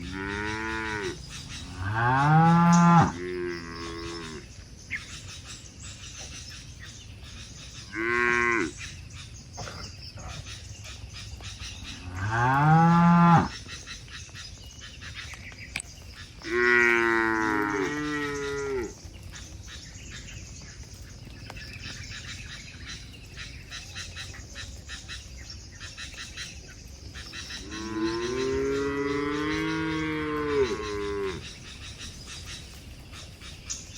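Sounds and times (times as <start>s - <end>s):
cattle mooing: 0.0s - 4.4s, 16.4s - 18.9s, 27.6s - 31.5s.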